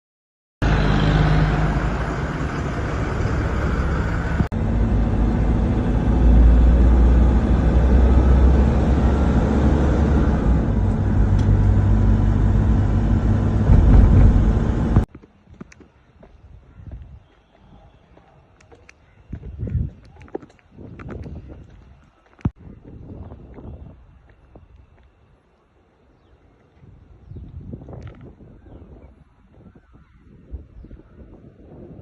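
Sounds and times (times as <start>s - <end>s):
vehicle engine rumbling: 0.6s - 15.2s.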